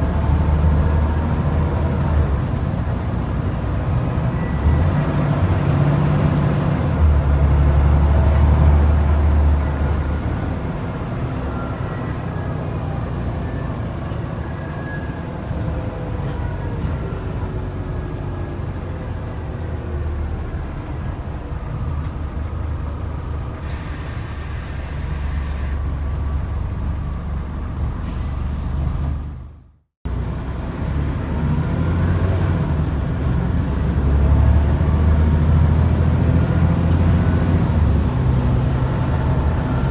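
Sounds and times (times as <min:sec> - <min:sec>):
bus engine pulling under load: 0:00.0 - 0:39.9
air brakes hiss: 0:23.6 - 0:25.8, 0:28.0 - 0:29.1.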